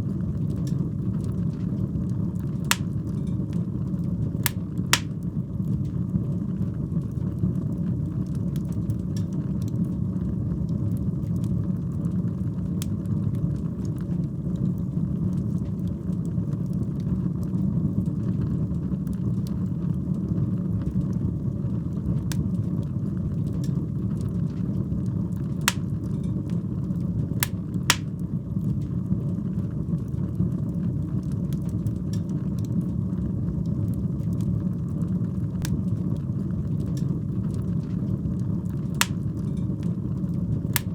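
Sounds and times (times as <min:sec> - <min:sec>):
sharp fire pops: 0:02.7 - 0:03.0, 0:04.5 - 0:05.2, 0:25.7 - 0:26.0, 0:27.4 - 0:28.2, 0:39.0 - 0:39.3
wood fire crackling: 0:02.7 - 0:03.6, 0:04.4 - 0:05.3, 0:25.7 - 0:26.2, 0:27.4 - 0:28.2, 0:38.9 - 0:39.8.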